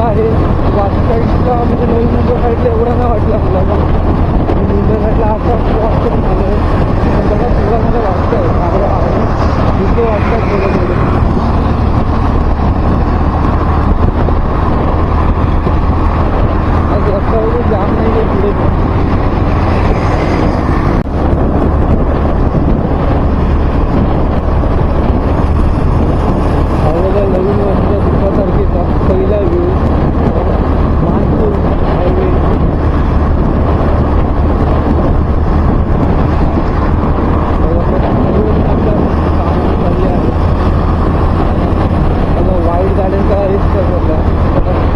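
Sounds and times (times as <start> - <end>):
vehicle road and engine noise: 0.0 - 44.9
wind noise on microphone: 0.0 - 44.9.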